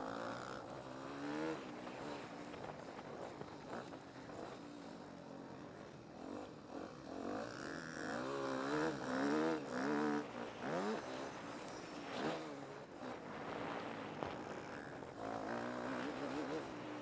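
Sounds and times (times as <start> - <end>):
motocross bike engine revving: 6.3 - 11.4, 13.8 - 17.0.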